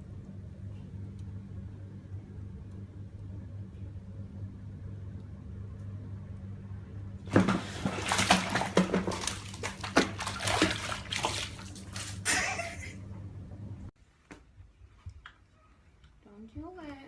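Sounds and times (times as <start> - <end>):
steady low hum: 0.0 - 17.0
water splashing and sloshing: 7.2 - 13.1.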